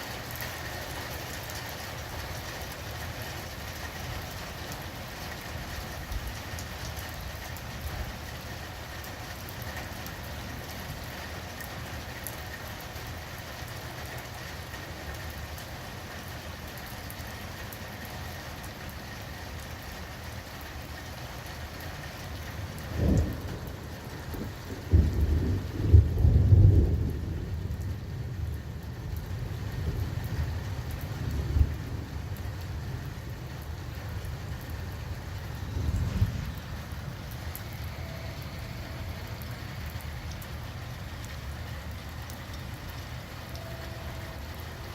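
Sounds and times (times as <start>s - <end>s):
steady rain falling: 0.0s - 44.9s
thunder clap and rumble: 22.8s - 40.4s.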